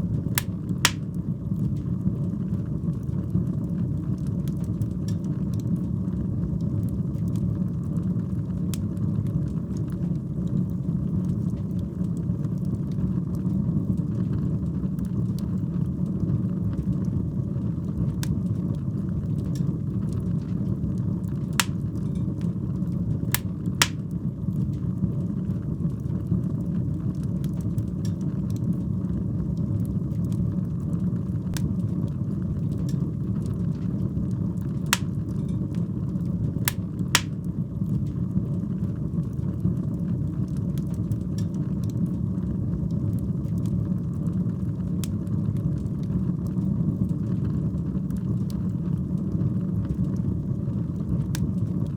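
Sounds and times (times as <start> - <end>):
flames rumbling: 0.0 - 9.9, 16.6 - 25.0, 28.8 - 41.3
sharp pops of burning wood: 0.4 - 1.1, 21.6 - 21.9, 23.4 - 24.1, 35.0 - 35.2, 36.7 - 37.4
fire crackling: 0.4 - 1.2, 21.6 - 22.2, 23.4 - 24.1, 35.0 - 35.4, 36.7 - 37.5.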